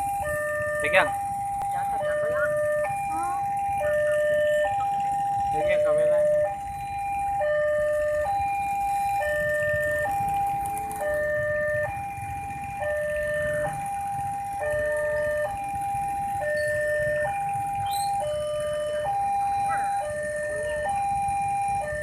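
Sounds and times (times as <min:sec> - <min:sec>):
level crossing two-tone alarm: 0:00.0 - 0:22.0.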